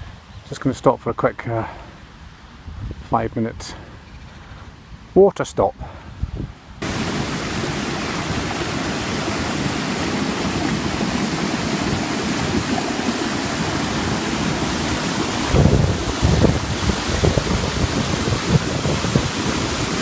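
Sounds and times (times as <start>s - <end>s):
low buffeting: 5.8s - 20.0s
stream water rushing: 6.8s - 20.0s.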